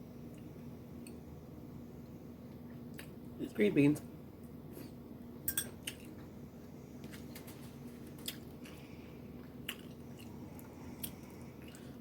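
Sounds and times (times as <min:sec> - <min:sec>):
faint low hum: 0:00.0 - 0:12.0
person chewing: 0:05.8 - 0:06.2, 0:08.0 - 0:12.0.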